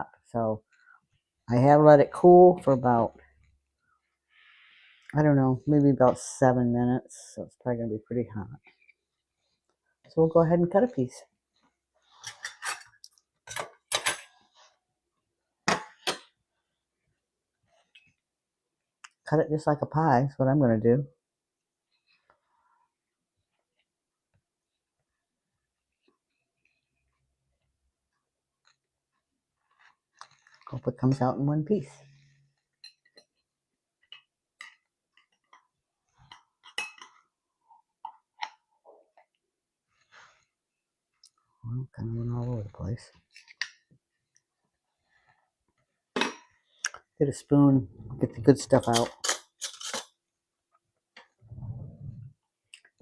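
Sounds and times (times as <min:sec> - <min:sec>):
metal utensils clinking on dishes: 0:12.2 - 0:14.3, 0:36.3 - 0:37.2, 0:48.8 - 0:50.1.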